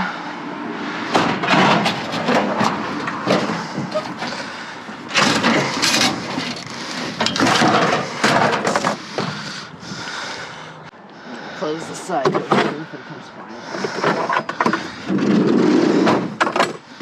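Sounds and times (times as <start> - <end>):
objects rustling and clattering: 1.1 - 10.2, 13.7 - 17.0.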